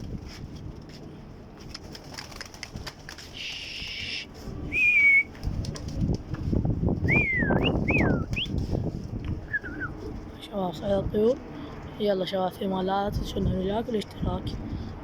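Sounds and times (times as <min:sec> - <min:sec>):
pigeon wings flapping: 0:00.0 - 0:10.4
short steady whistle: 0:03.4 - 0:05.3.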